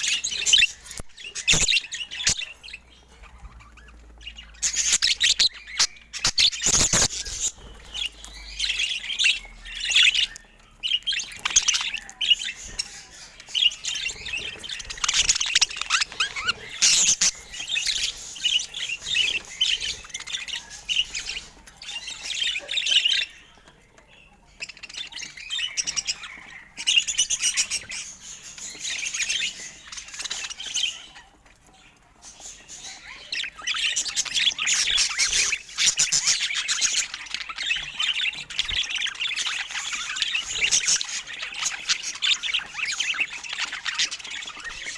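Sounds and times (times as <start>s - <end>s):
budgerigar chattering and warbling: 11.3s - 23.6s.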